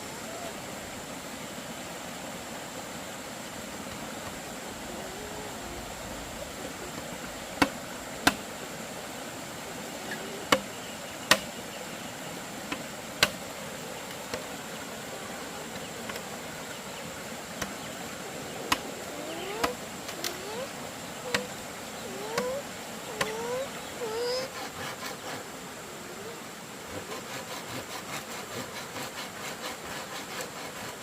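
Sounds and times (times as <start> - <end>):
high insect drone: 0.0 - 31.0
tools knocking on bamboo: 7.0 - 8.4, 11.3 - 11.5, 21.3 - 21.5.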